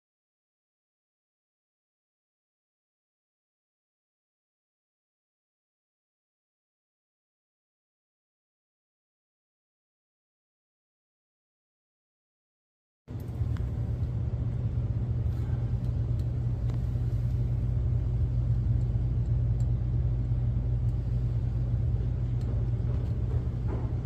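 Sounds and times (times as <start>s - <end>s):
low mechanical rumble: 13.1s - 24.0s.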